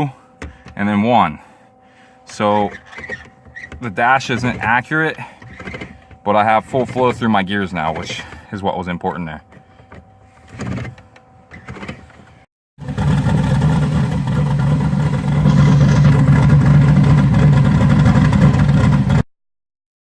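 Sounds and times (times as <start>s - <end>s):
engine idling: 12.8s - 19.2s.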